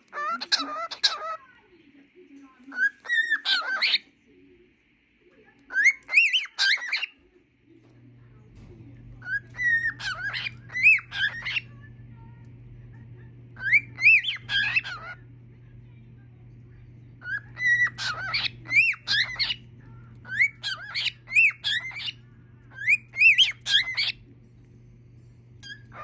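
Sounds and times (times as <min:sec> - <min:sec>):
steady low hum: 0:00.7 - 0:26.0
cockatiel whistling: 0:02.7 - 0:04.0, 0:05.7 - 0:07.1, 0:09.2 - 0:11.7, 0:13.6 - 0:15.2, 0:17.2 - 0:19.6, 0:20.2 - 0:24.2.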